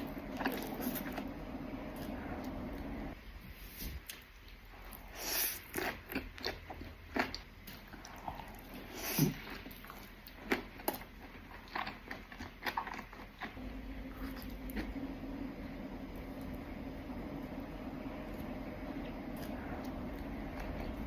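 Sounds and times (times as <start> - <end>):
person biting and chewing food: 4.0 - 14.9, 19.4 - 21.0.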